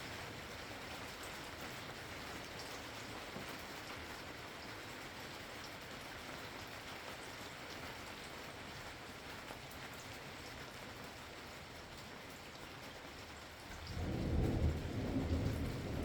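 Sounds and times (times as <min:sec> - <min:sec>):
rain pattering: 0:00.0 - 0:16.0
thunder rumbling: 0:13.8 - 0:16.0.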